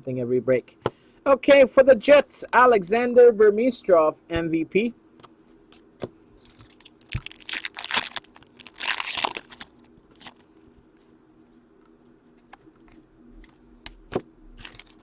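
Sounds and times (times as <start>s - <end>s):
wrapper tearing and crinkling: 6.4s - 10.4s, 14.6s - 15.0s.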